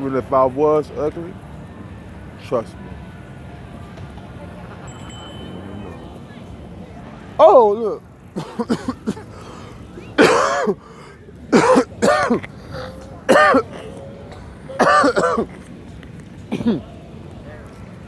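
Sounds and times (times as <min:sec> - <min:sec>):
man making raspy vocal sounds: 0:08.4 - 0:15.7.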